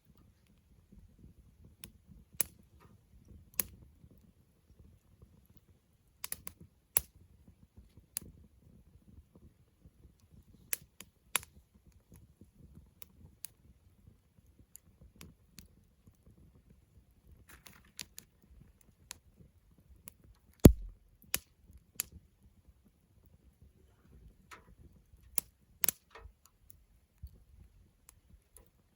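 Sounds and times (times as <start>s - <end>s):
campfire crackling and popping: 20.6s - 21.0s.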